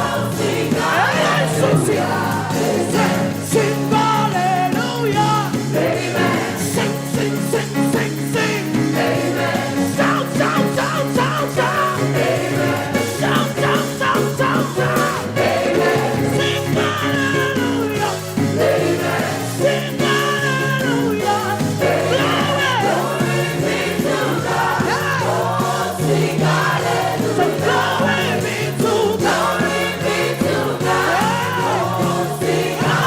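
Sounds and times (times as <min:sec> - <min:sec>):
choir singing: 0:00.0 - 0:33.0
gospel church band playing: 0:00.0 - 0:33.0.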